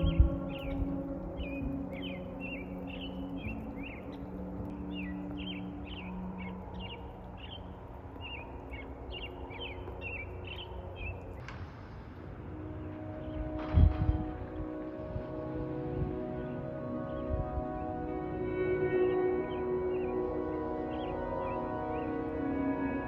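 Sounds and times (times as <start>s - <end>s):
small birds chirping: 0.0s - 11.6s
low steady drone: 0.0s - 23.0s.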